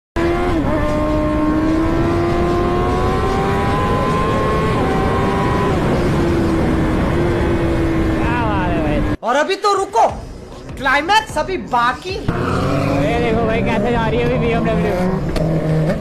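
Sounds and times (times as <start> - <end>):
motorcycle engine at high revs: 0.2 - 9.1, 12.3 - 16.0.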